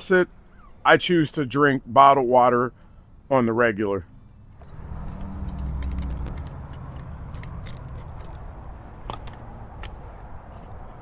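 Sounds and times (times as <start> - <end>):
steady low rumble: 4.1 - 11.0.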